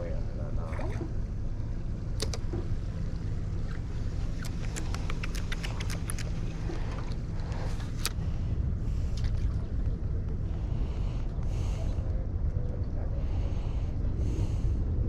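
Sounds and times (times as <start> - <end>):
wind and water rumble: 0.0 - 15.0
sharp light clicks: 2.2 - 2.5, 4.4 - 6.4.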